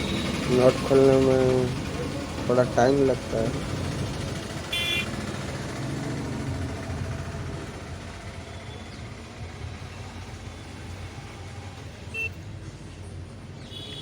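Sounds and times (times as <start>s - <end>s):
distant road traffic rumble: 0.0s - 14.0s.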